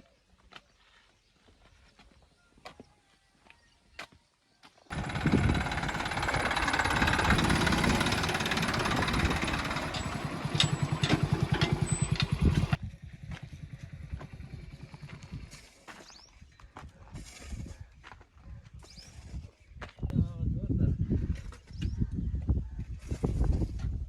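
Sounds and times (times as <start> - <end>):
vehicle engine running: 4.9 - 15.7.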